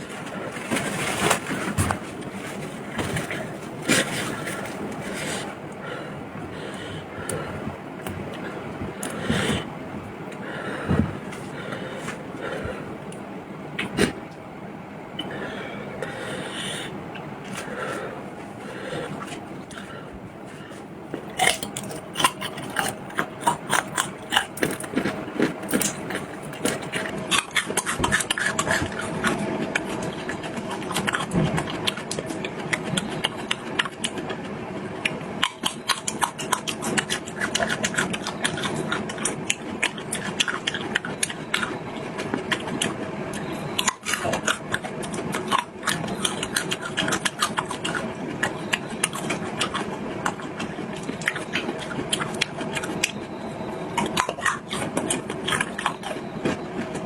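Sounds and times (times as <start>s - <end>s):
chewing and lip-smacking: 0.0s - 9.7s, 15.2s - 29.1s, 35.0s - 53.3s, 53.9s - 57.0s
faint steady hum: 0.0s - 27.4s.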